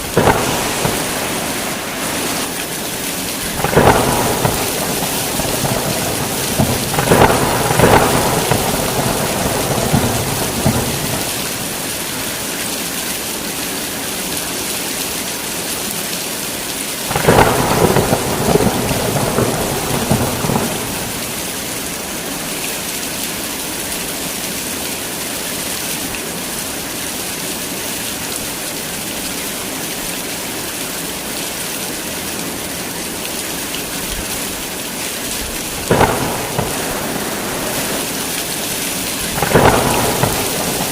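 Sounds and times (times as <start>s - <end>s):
thunder rumbling: 0.0s - 12.4s, 17.1s - 22.1s, 35.4s - 40.9s
heavy rain falling: 0.0s - 40.9s.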